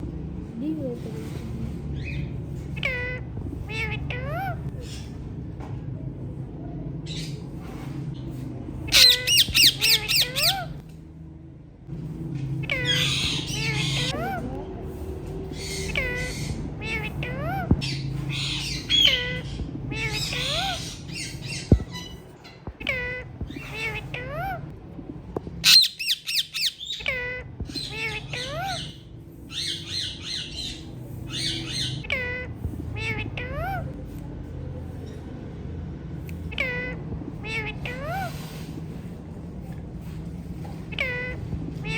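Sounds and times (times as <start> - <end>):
parrots squawking: 1.2 - 5.2, 8.8 - 10.8, 12.6 - 24.7, 25.6 - 34.1, 36.2 - 39.2, 40.0 - 41.9.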